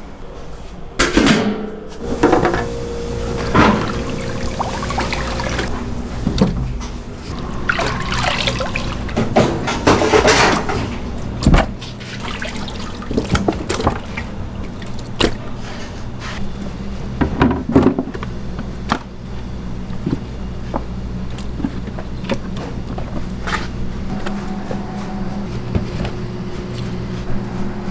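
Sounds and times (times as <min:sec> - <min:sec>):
kitchen clatter and knocks: 0:01.0 - 0:14.3, 0:17.2 - 0:18.3
low machine hum: 0:01.8 - 0:27.9
water rushing and splashing: 0:02.0 - 0:14.3.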